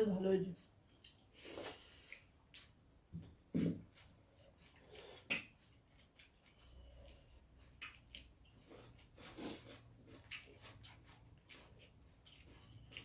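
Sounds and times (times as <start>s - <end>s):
mouths chewing: 0.6s - 13.0s
fingers squishing rice: 4.0s - 13.0s.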